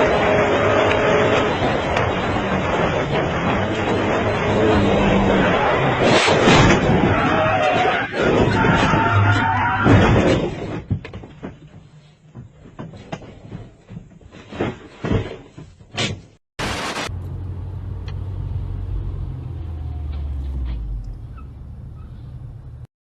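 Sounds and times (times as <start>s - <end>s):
loud burst of noise: 16.6s - 17.1s
low vehicle rumble: 17.0s - 22.9s.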